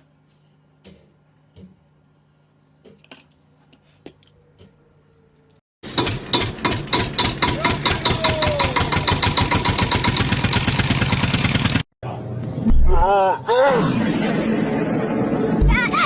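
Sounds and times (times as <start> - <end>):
engine chugging: 5.9 - 11.8.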